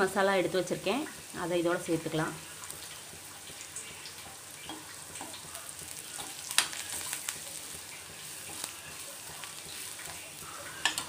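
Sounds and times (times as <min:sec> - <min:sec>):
onions sizzling in oil: 0:00.0 - 0:11.0
spatula knocking pan: 0:04.6 - 0:11.0.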